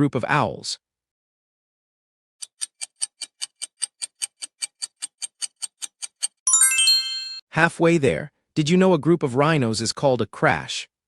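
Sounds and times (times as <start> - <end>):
clock-like ticking: 2.4 - 6.4
bright chime of stepping tones: 6.5 - 7.4.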